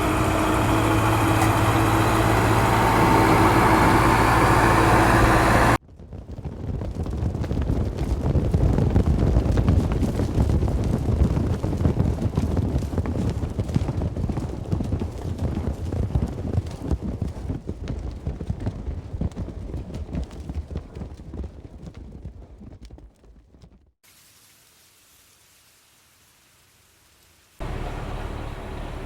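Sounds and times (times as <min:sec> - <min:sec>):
cattle hoofbeats: 0:06.6 - 0:23.8.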